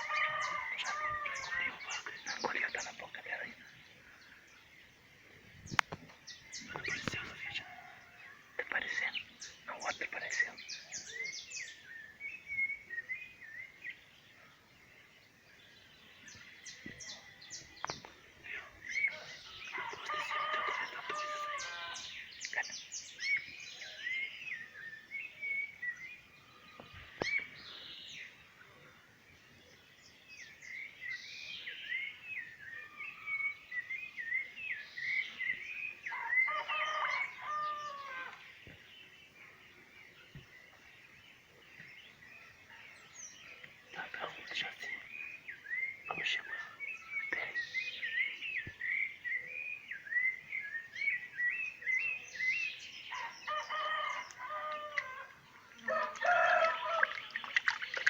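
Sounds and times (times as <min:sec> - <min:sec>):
rooster crowing: 0:00.0 - 0:01.8, 0:19.8 - 0:22.1, 0:36.1 - 0:38.4, 0:53.2 - 0:57.2
small birds chirping: 0:00.0 - 0:58.0.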